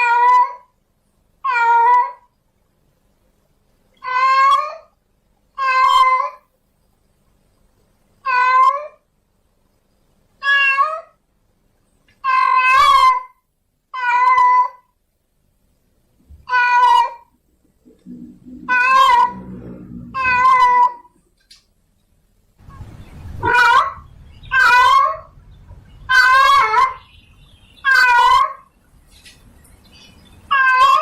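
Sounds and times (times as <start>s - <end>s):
cat meowing: 0.0s - 0.6s, 1.4s - 2.2s, 4.0s - 4.9s, 5.6s - 6.4s, 8.2s - 9.0s, 10.4s - 11.2s, 12.2s - 13.3s, 13.9s - 14.9s, 16.4s - 17.3s, 18.6s - 21.2s, 23.4s - 25.4s, 26.1s - 27.0s, 27.8s - 28.6s, 30.5s - 31.0s.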